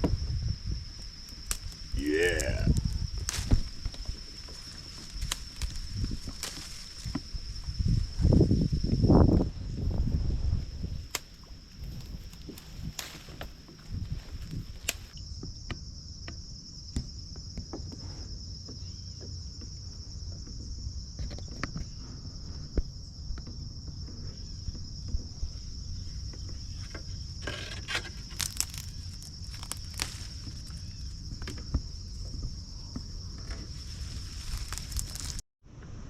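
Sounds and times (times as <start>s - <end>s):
wind rumble on microphone: 0.0s - 2.0s, 2.6s - 15.5s
insect chorus trilling: 0.0s - 35.4s.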